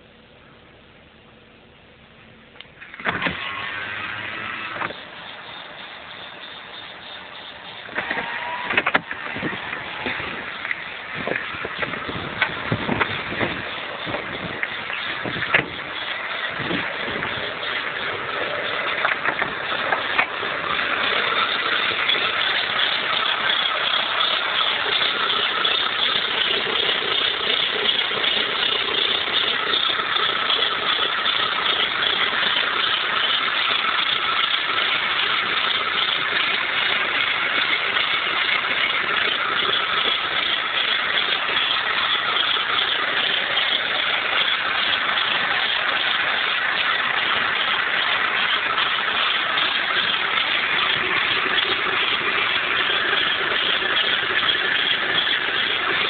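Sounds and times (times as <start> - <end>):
car engine idling: 0.0 - 56.0
sharp engine knocks: 7.8 - 56.0.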